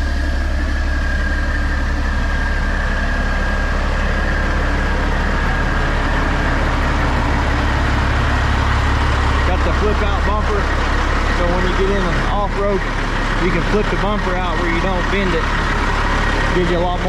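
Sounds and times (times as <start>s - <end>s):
faint high whine: 0.0s - 10.8s
truck diesel engine idling: 0.0s - 17.0s.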